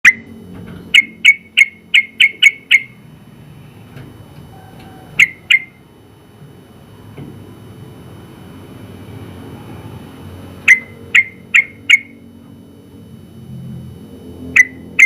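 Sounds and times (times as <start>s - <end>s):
bulbul calling: 0.9s - 3.0s, 4.6s - 5.8s, 10.7s - 12.2s.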